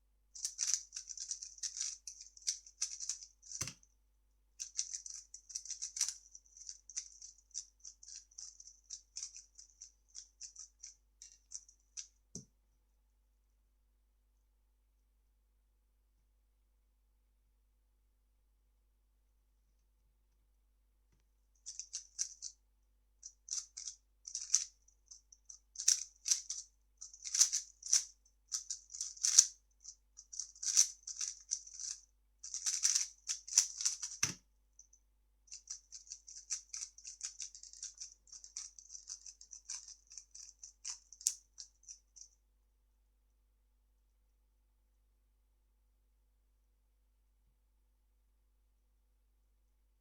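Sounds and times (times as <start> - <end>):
puzzle cube clicking: 0.4 - 3.8, 30.4 - 34.4.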